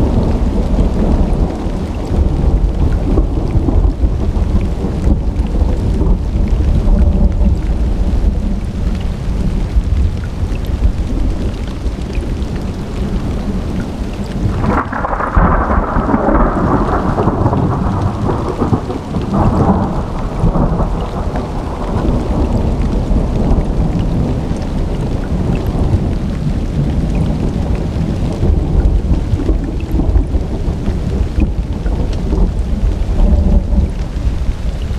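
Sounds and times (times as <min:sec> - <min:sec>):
low rolling thunder: 0:00.0 - 0:34.9
steady rain: 0:00.0 - 0:34.9
sharp thunderclap: 0:14.4 - 0:34.6.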